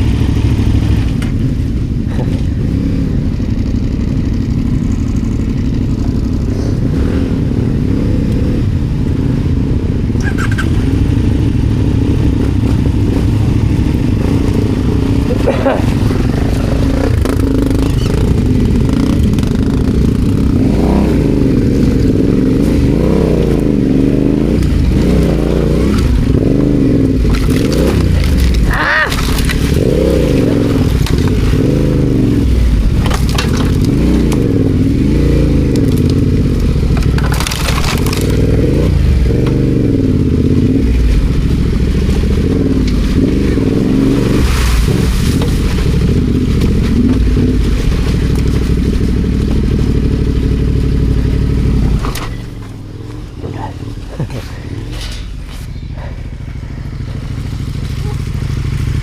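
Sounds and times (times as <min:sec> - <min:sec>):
motorcycle engine revving: 0:00.0 - 0:59.0
knocks and clatters: 0:32.8 - 0:34.6, 0:35.7 - 0:39.7, 0:51.6 - 0:55.7.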